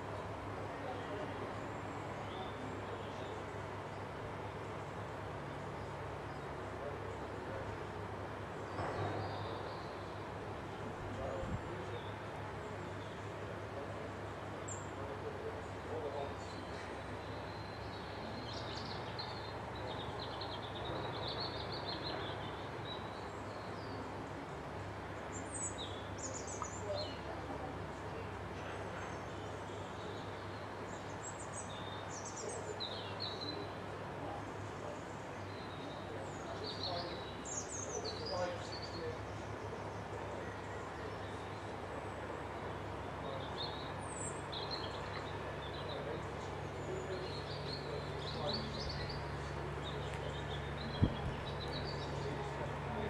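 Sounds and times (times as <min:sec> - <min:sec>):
songbird twittering: 0:25.3 - 0:27.2.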